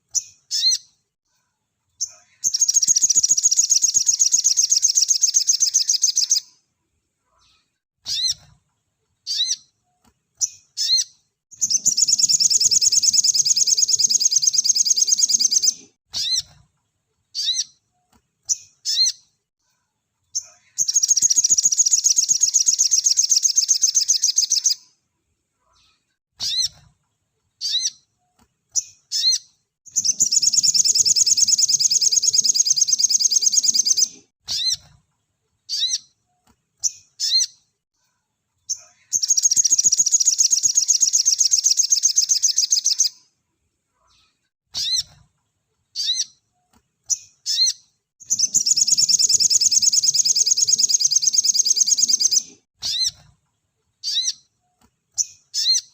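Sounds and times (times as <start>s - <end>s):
sharp upslurred bird chirps: 0.1s - 1.0s, 2.0s - 6.6s, 7.4s - 8.6s, 9.2s - 9.8s, 10.4s - 16.6s, 17.3s - 17.9s, 18.5s - 19.4s, 20.3s - 25.0s, 25.8s - 26.9s, 27.6s - 28.2s, 28.8s - 34.9s, 35.7s - 37.7s, 38.7s - 43.3s, 44.2s - 45.2s, 46.0s - 46.5s, 47.1s - 53.3s, 54.0s - 55.9s
bird singing rapid high trills: 2.4s - 6.4s, 10.8s - 16.4s, 29.1s - 34.8s, 39.2s - 43.1s, 47.5s - 53.1s.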